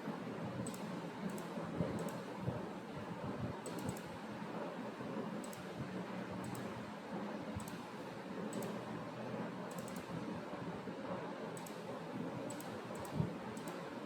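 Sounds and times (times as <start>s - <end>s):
computer mouse clicking: 0.6s - 2.2s, 3.6s - 4.1s, 5.4s - 5.7s, 6.4s - 6.7s, 7.6s - 7.8s, 8.5s - 8.8s, 9.7s - 10.1s, 11.6s - 11.8s, 12.5s - 13.8s.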